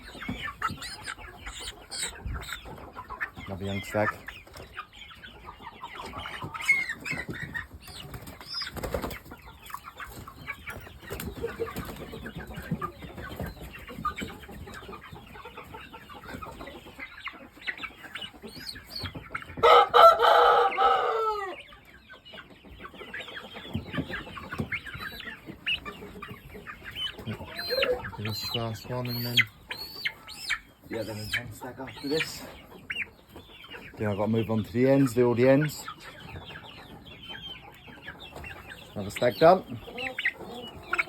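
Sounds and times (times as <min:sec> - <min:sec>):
chickens clucking: 0:00.0 - 0:41.0
rooster crowing: 0:19.6 - 0:21.6.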